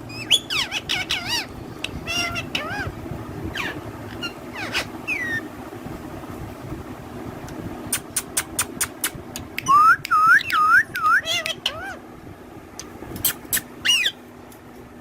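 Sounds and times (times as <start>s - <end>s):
parrot looping whistles: 0.1s - 2.9s, 3.5s - 5.5s, 8.0s - 12.0s, 13.2s - 14.2s.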